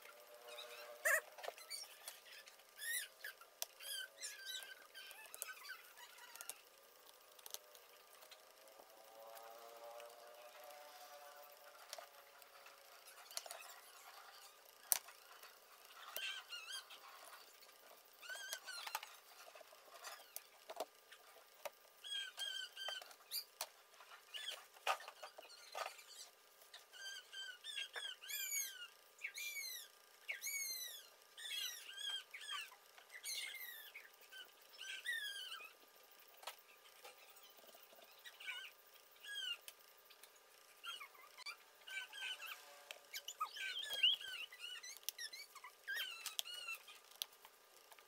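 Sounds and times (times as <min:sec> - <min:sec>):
bird chirping: 0:40.8 - 0:46.9.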